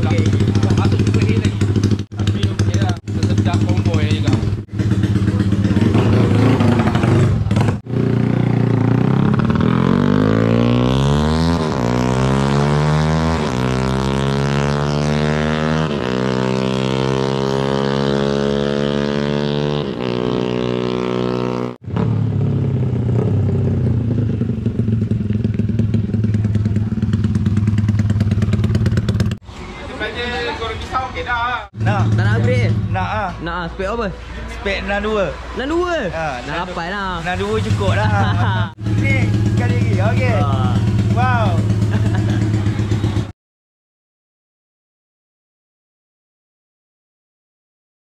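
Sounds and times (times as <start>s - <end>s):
motorcycle engine revving: 0.0s - 29.4s, 31.7s - 33.3s, 37.3s - 43.3s.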